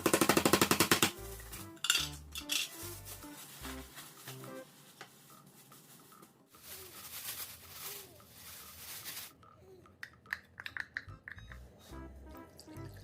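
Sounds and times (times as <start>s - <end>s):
tableware clinking: 1.8s - 2.8s.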